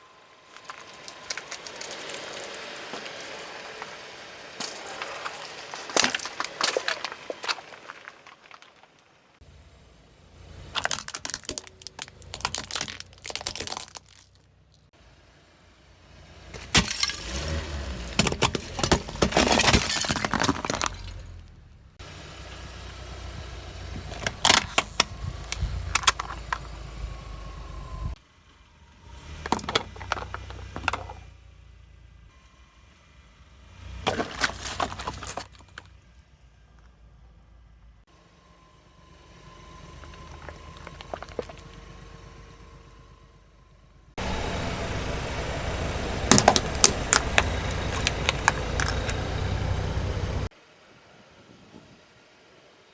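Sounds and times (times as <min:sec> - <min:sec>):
car rumble: 0:00.0 - 0:51.2
tyres crunching brittle objects: 0:00.5 - 0:09.3, 0:10.7 - 0:14.9, 0:16.5 - 0:21.5, 0:23.9 - 0:26.7, 0:34.0 - 0:35.9, 0:40.0 - 0:41.8, 0:46.3 - 0:49.4.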